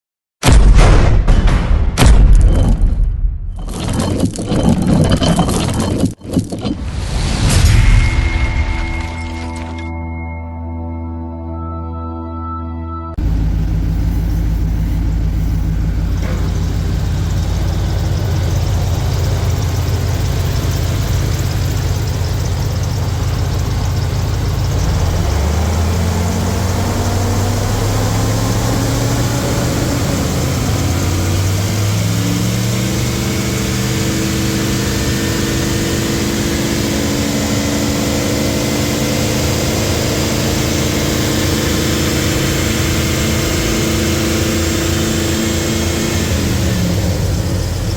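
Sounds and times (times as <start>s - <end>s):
car engine idling and revving: 13.2s - 47.9s.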